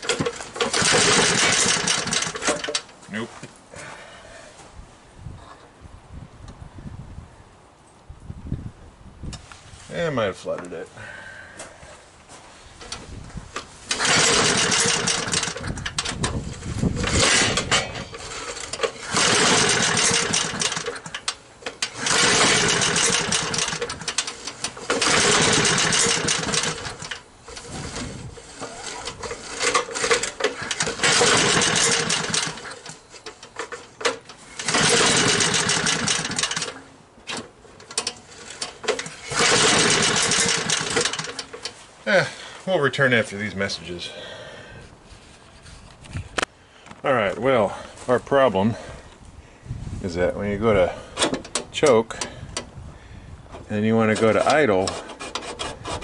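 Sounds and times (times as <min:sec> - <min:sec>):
small engine cranking: 0:00.0 - 0:02.9, 0:13.9 - 0:41.8, 0:53.9 - 0:56.0.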